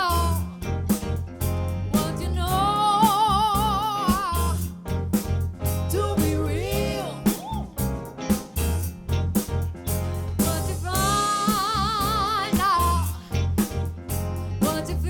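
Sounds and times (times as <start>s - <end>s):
live soul band playing: 0.0s - 15.0s
two-part vocal harmony: 2.0s - 4.7s, 5.8s - 7.9s, 10.4s - 13.4s.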